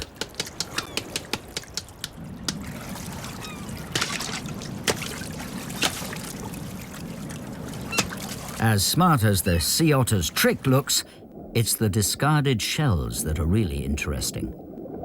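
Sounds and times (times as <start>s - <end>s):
clam knocking against stone: 0.0s - 2.6s
water lapping: 0.0s - 12.2s.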